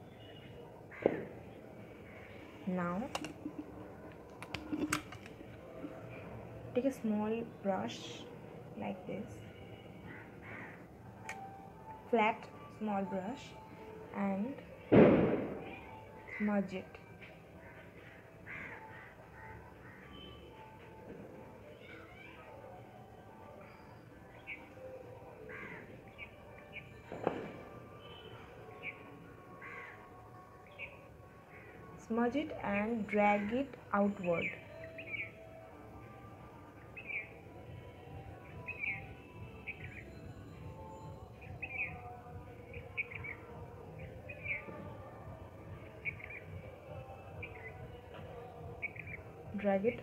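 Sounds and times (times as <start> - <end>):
sharp knock: 15.0 - 15.6
birds calling: 46.0 - 46.5, 48.8 - 49.2.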